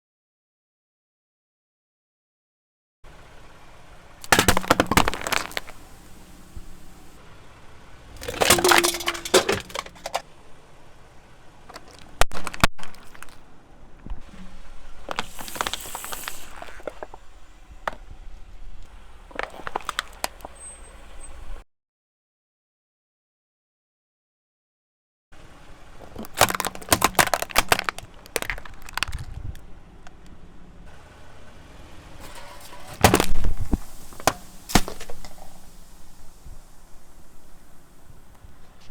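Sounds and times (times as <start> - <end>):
objects crushed under car tyres: 4.2 - 7.2, 8.1 - 10.3, 11.6 - 13.5, 14.1 - 20.6, 26.0 - 30.2, 32.0 - 38.9.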